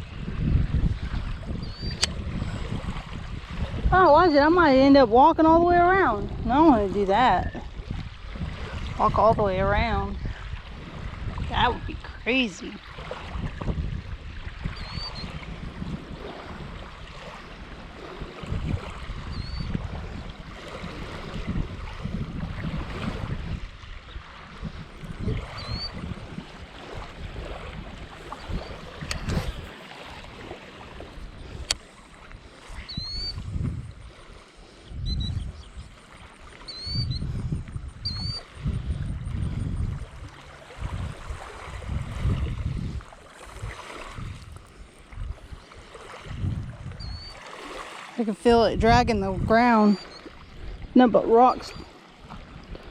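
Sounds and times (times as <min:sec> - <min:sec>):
wind buffeting microphone: 0:00.0 - 0:52.9
bird chirping: 0:36.7 - 0:37.2, 0:47.0 - 0:47.4.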